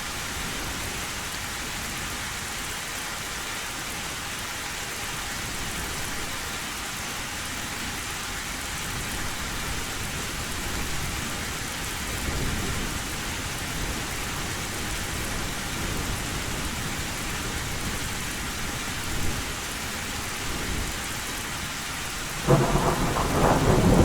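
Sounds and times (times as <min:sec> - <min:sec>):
heavy rain on a metal roof: 0:00.0 - 0:24.0
distant thunder rumbles: 0:22.4 - 0:24.0.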